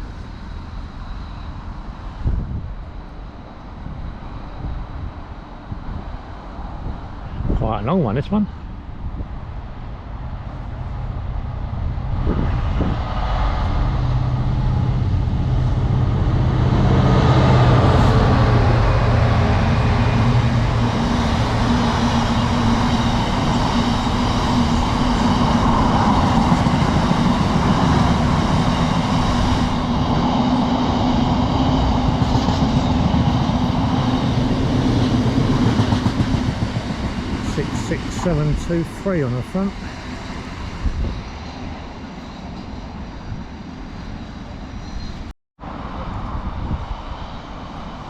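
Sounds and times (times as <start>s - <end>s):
locomotive engine drone: 0.0s - 48.0s
freight wagons rumbling past: 13.2s - 40.5s.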